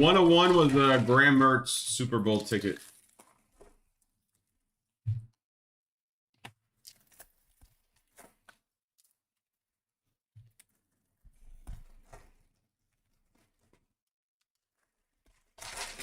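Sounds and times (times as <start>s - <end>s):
card pack crinkling: 0.0s - 1.6s, 2.3s - 3.5s, 15.6s - 16.0s
card packs rustling: 0.0s - 3.4s, 15.6s - 16.0s.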